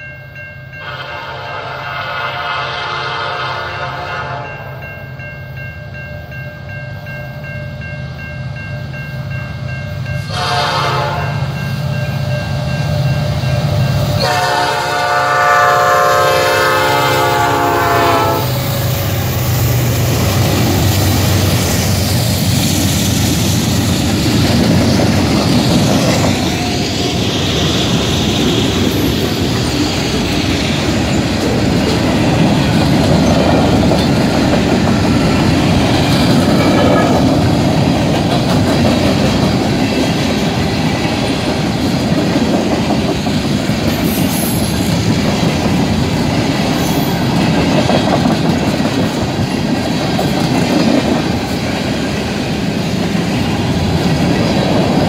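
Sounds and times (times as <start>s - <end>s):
train horn blasts: 0.7s - 4.8s, 10.2s - 11.5s, 14.2s - 19.4s
locomotive engines: 8.0s - 55.0s
wheels clattering on rails: 19.2s - 55.0s.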